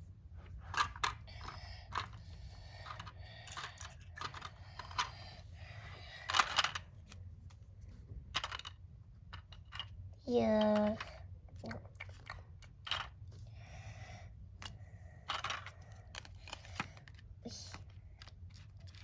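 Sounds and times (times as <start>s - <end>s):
plastic toy pieces clicking: 0.8s - 2.2s, 2.8s - 5.2s, 6.2s - 6.9s, 8.4s - 8.8s, 12.0s - 13.2s, 14.6s - 19.0s
plastic pieces rattling: 2.8s - 5.2s, 6.2s - 6.9s, 15.3s - 19.0s.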